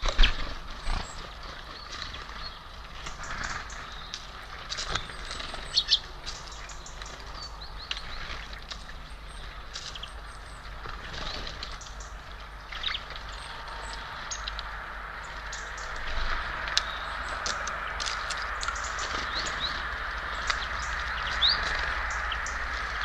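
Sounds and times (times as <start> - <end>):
low background rumble: 0.0 - 23.0
small birds chirping: 0.0 - 23.0.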